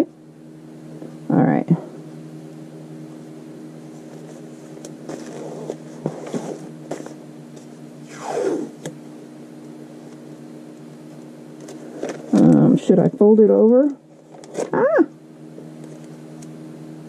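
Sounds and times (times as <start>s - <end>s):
low hum: 0.0s - 17.0s
scratchy paper handling: 3.9s - 7.8s.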